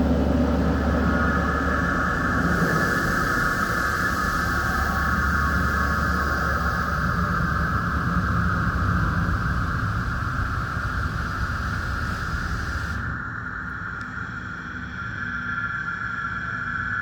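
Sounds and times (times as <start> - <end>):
low machine rumble: 0.0 - 17.0
water spraying hiss: 1.4 - 13.1.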